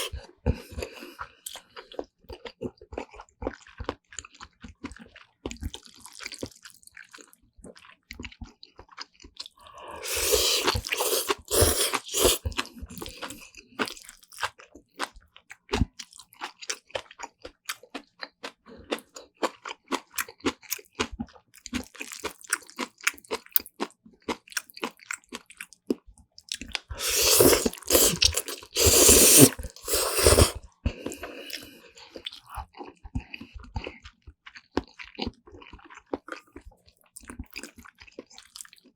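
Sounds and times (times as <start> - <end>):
wet chewing and crunching: 0.0 - 38.9.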